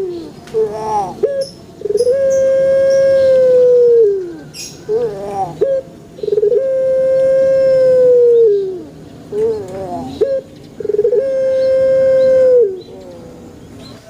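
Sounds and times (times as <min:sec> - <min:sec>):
dove cooing: 0:00.0 - 0:14.0.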